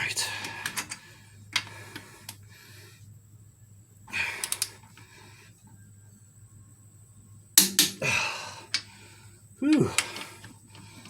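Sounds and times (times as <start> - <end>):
hand tool clicks: 7.6 - 8.0.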